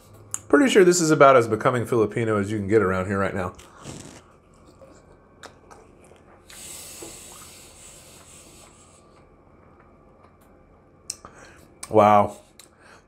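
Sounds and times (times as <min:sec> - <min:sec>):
man chewing: 0:03.6 - 0:10.5.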